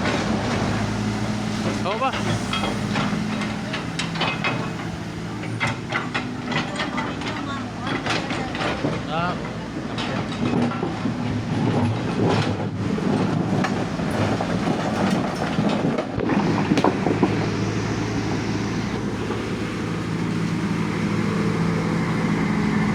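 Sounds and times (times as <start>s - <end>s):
excavator diesel engine running: 0.0s - 22.9s
metallic clanks and knocks: 1.6s - 17.6s.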